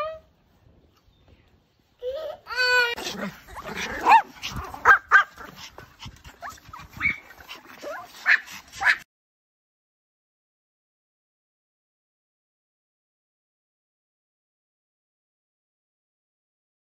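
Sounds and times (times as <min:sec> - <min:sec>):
dog whining and barking: 0:02.1 - 0:05.7, 0:06.3 - 0:09.0.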